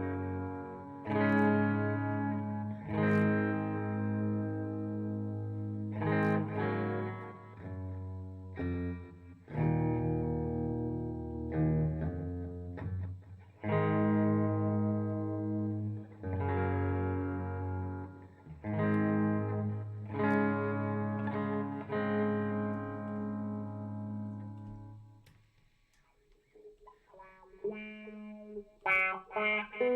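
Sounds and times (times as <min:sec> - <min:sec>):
distorted electric guitar chords: 0:00.0 - 0:25.1, 0:26.6 - 0:29.9.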